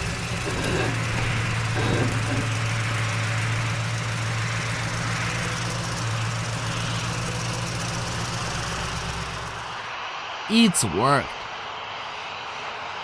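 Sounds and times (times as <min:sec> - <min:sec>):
truck engine humming: 0:00.0 - 0:09.9.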